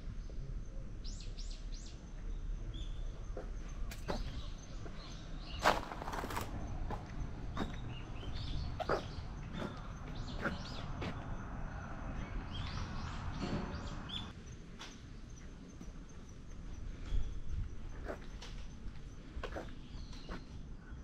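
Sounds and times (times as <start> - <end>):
birds chirping: 0.1 - 21.0.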